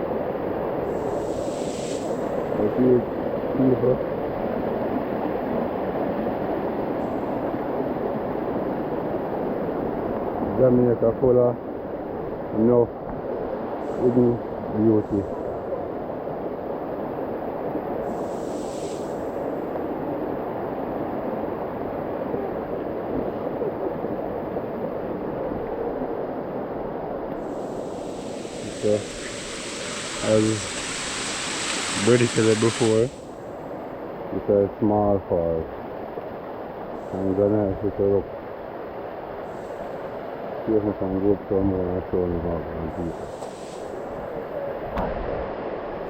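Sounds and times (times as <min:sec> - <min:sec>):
waterfall rushing: 0:27.4 - 0:33.4.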